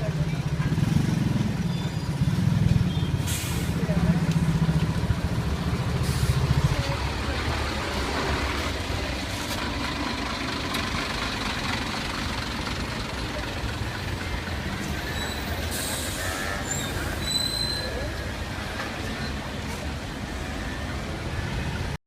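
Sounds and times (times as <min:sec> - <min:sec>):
heavy vehicle engine running: 0:00.0 - 0:22.0
passing traffic: 0:00.0 - 0:22.0.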